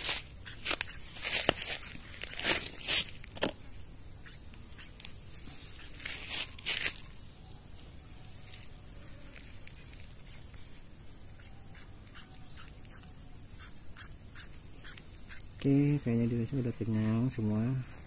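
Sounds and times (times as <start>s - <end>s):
crackling rustling handling noise: 0.0s - 3.6s, 5.0s - 10.6s.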